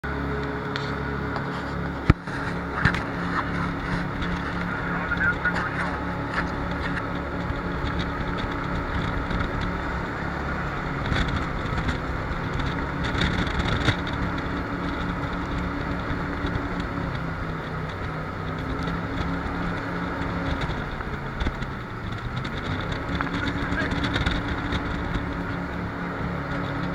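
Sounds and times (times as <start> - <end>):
jet boat engine running: 0.0 - 26.9
rushing wind: 0.1 - 26.9
water rushing: 1.9 - 13.1.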